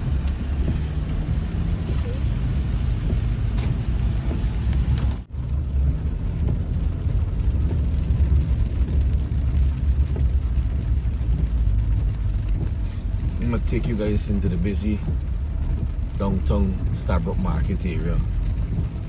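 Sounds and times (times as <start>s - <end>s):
car interior driving rumble: 0.0s - 19.0s.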